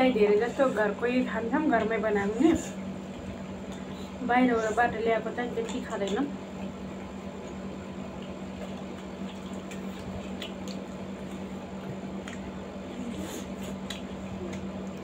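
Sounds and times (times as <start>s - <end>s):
wet chewing sounds: 2.6s - 4.8s, 5.4s - 15.0s.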